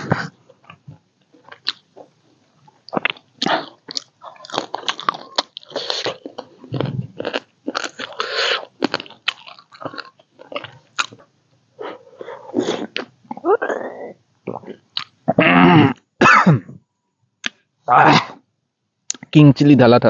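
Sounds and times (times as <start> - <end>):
person chewing crunchy food: 0.1 - 15.2.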